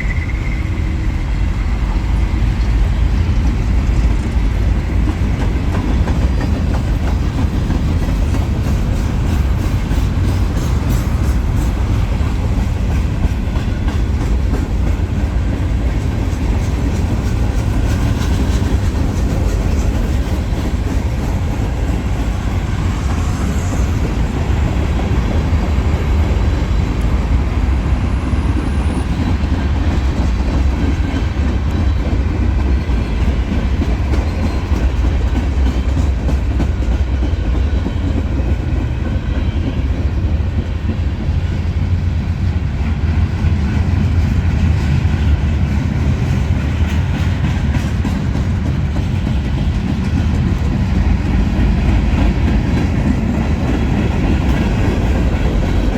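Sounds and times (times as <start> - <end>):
freight train rumbling past: 0.0 - 55.9
wheels clacking over rail joints: 2.6 - 39.6.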